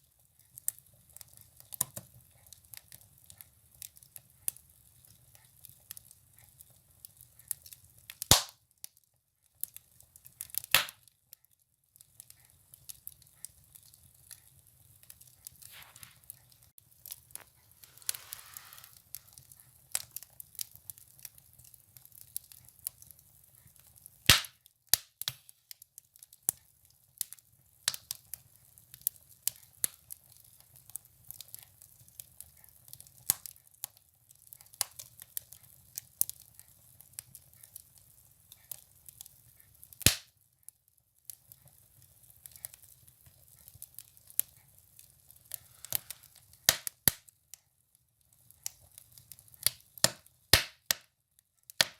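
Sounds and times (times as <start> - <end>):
firewood crackling in stove: 0.0 - 51.9
wood fire pops: 7.1 - 8.6, 9.6 - 11.0, 15.0 - 26.6, 38.7 - 40.3, 41.3 - 47.3, 48.5 - 51.1, 51.7 - 51.9.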